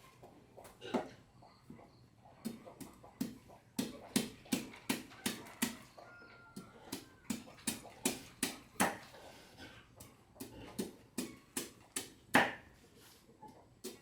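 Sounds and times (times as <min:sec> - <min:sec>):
knife chopping on wooden board: 0:08.8 - 0:09.0, 0:10.8 - 0:12.7.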